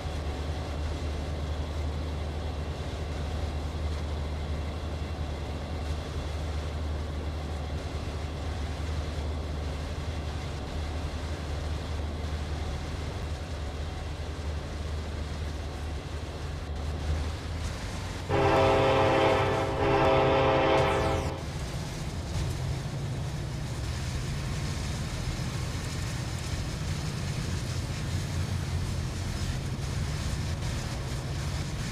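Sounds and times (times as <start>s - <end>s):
diesel locomotive rumble: 0.0s - 31.9s
locomotive air horn blasts: 18.3s - 21.5s.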